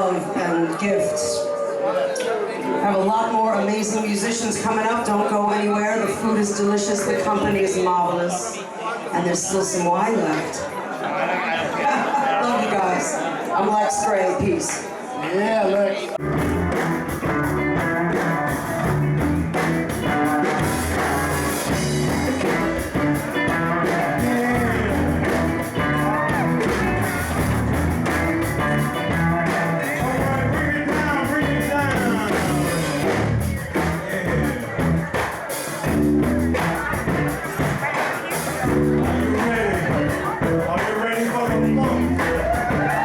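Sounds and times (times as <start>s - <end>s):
electric guitar: 16.2s - 40.9s, 41.5s - 43.0s
bass: 16.2s - 43.0s
drums with steady beat: 16.2s - 43.0s.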